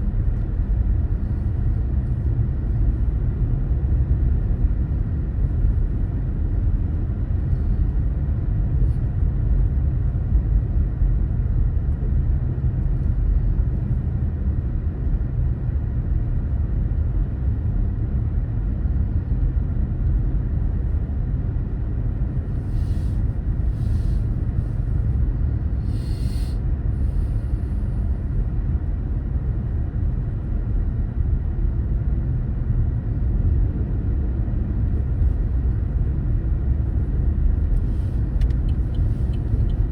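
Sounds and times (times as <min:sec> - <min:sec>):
brief hisses: 0:25.8 - 0:26.6
car driving rumble: 0:33.2 - 0:39.9.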